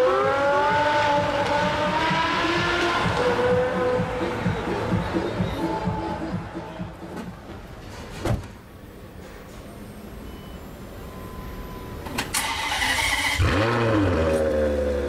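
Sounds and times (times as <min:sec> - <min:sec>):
thump: 0:08.1 - 0:08.6
engine firing up: 0:12.1 - 0:15.0.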